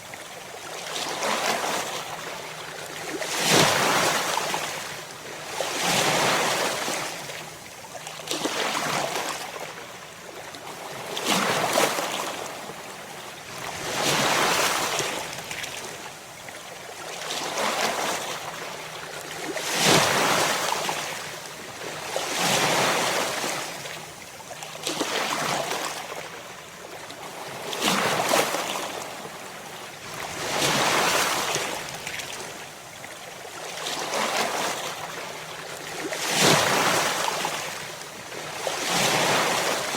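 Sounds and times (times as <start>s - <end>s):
ocean waves breaking on shore: 27.2s - 32.7s, 33.5s - 39.9s.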